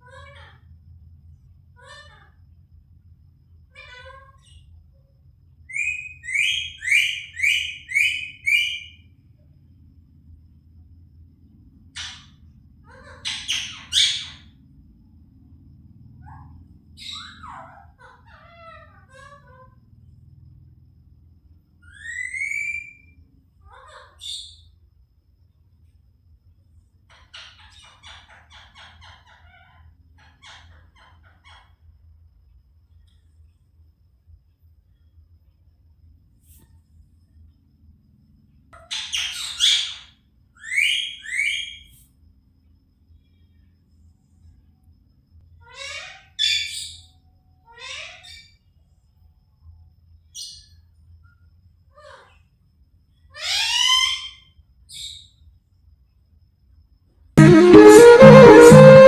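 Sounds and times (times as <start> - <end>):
parrot calling: 5.7 - 9.0.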